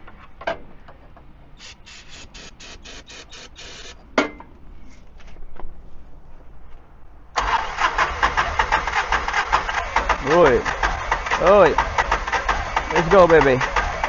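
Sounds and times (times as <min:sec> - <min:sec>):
short hissy pulses: 0:01.6 - 0:04.0.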